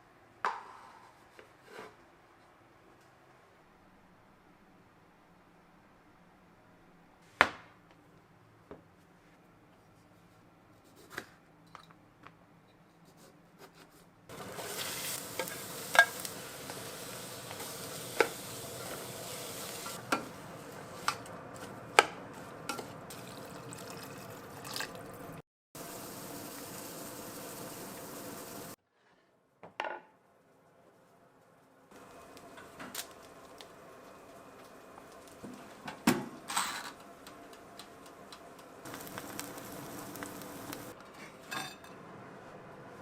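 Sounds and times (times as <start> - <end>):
utensils clinking on cookware: 14.3 - 16.8, 40.1 - 42.1
steady cooking hiss: 14.3 - 28.8, 31.9 - 43.0.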